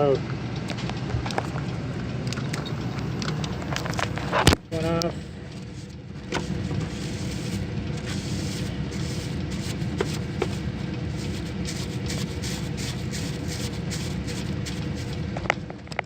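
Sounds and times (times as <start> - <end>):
liquid spraying on coil: 5.6 - 15.6.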